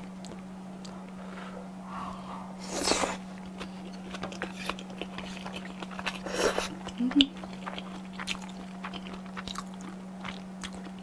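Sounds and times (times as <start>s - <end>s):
steady low hum: 0.0s - 11.0s
wet chewing mouth sounds: 2.6s - 11.0s.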